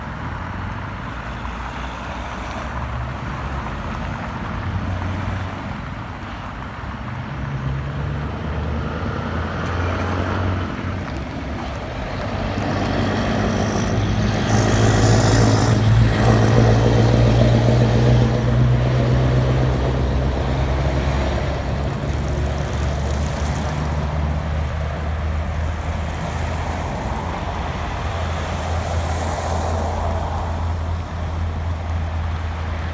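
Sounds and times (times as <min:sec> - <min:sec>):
truck engine rumbling: 0:07.9 - 0:32.9.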